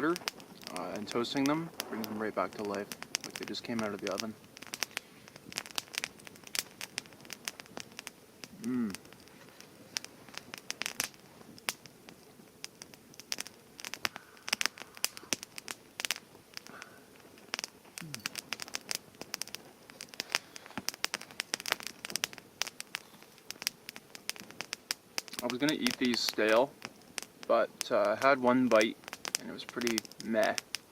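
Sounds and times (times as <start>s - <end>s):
pastries crackling and popping: 0.0s - 30.9s.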